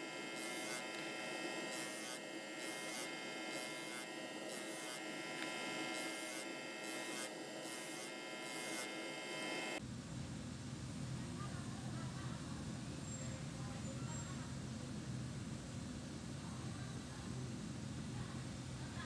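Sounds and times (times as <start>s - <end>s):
electric motor humming and whining: 0.0s - 9.8s.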